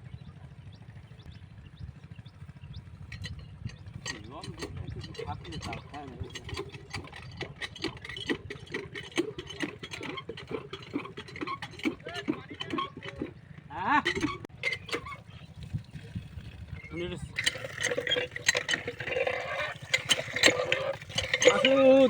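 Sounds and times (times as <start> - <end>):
low steady rumble: 0.0 - 22.0
people talking: 4.1 - 6.6, 11.9 - 14.3, 16.8 - 17.5, 21.4 - 22.0.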